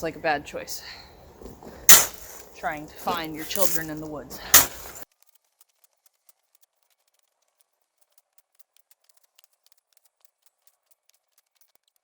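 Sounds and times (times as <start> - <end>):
faint irregular ticks: 5.0 - 12.0.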